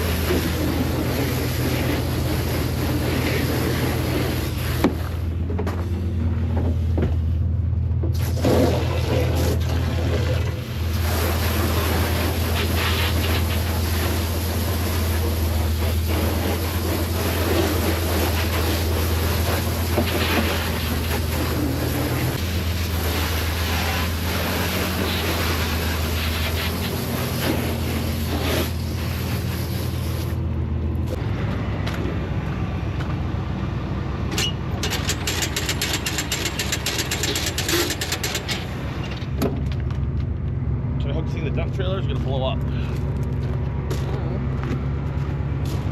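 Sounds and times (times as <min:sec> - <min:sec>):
engine droning: 0:00.0 - 0:45.9
fast sharp clicks or rattles: 0:34.8 - 0:38.7.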